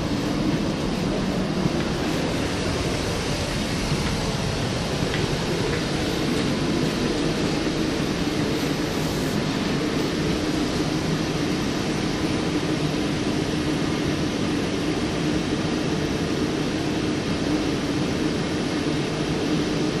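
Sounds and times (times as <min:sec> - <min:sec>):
electric train running drone: 0:00.0 - 0:20.0.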